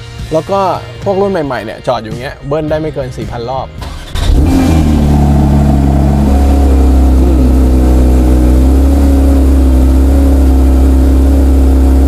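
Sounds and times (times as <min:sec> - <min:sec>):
car engine idling high: 0:04.2 - 0:12.0.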